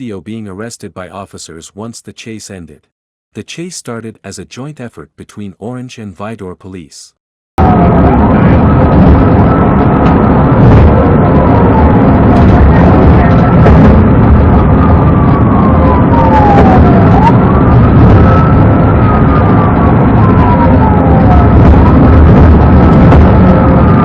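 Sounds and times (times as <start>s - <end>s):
police siren wailing: 7.6s - 24.0s
vehicle and road noise: 7.6s - 24.0s.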